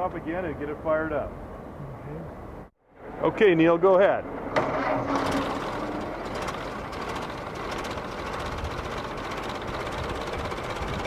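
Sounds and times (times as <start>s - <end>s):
old truck engine running: 4.5s - 11.0s.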